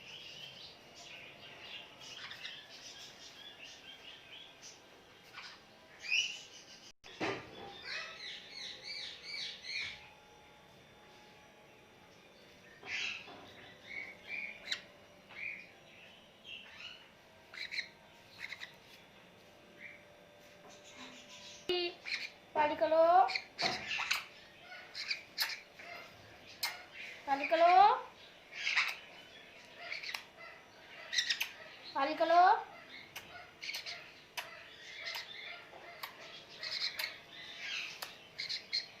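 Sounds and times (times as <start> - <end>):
parrot squawking and chirping: 7.8 - 10.0, 13.9 - 15.6, 16.6 - 18.8, 20.8 - 22.4, 23.1 - 27.9, 28.5 - 29.1, 29.7 - 39.0.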